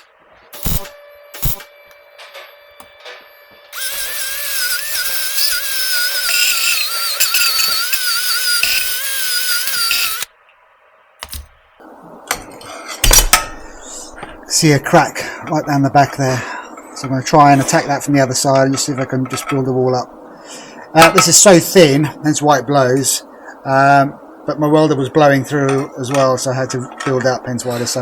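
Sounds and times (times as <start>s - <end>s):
power tool hissing whine: 0.0s - 10.3s.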